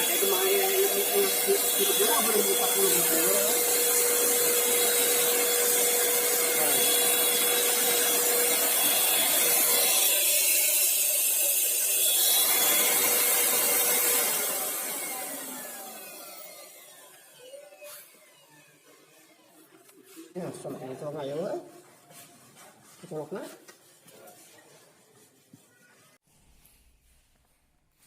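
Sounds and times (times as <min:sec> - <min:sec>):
electric paint sprayer humming: 0:00.0 - 0:19.7.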